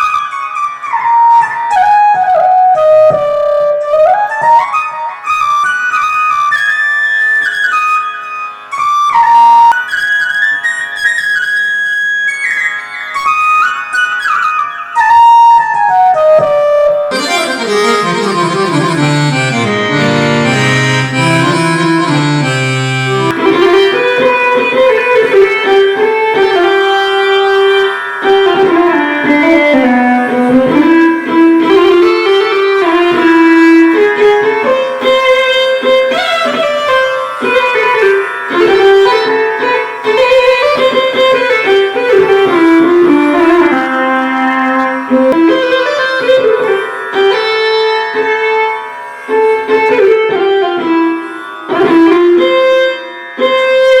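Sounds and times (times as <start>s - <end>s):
synthesizer melody with pitch bends: 17.0s - 23.6s.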